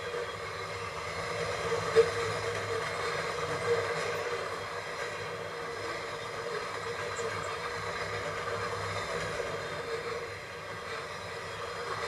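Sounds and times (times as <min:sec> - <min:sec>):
freight train cars rolling: 0:00.0 - 0:12.0.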